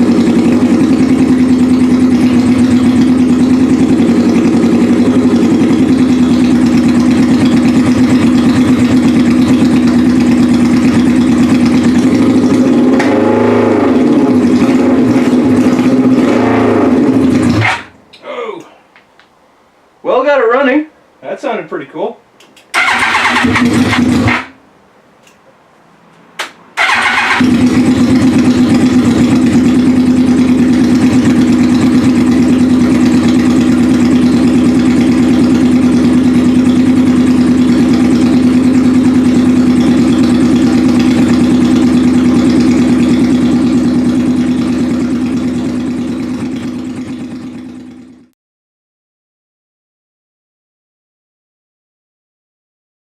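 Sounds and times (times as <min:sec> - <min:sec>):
motorcycle engine running: 0:00.0 - 0:18.0, 0:22.8 - 0:24.6, 0:26.8 - 0:48.4.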